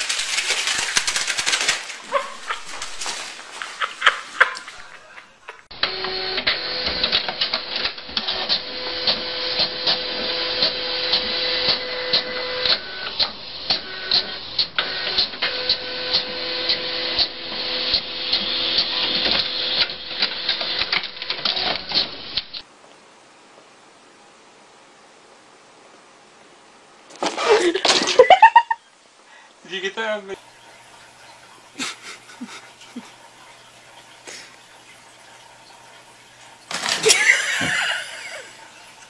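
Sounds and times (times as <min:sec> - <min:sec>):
small machine humming: 0:05.7 - 0:07.1.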